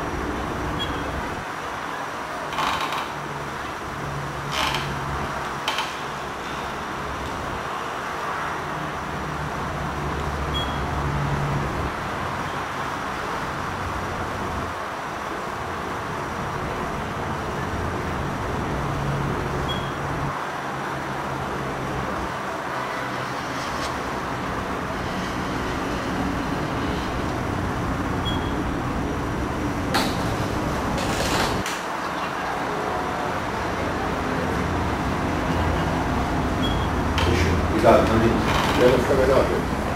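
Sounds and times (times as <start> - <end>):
background rumble and hiss: 13.4 - 39.9.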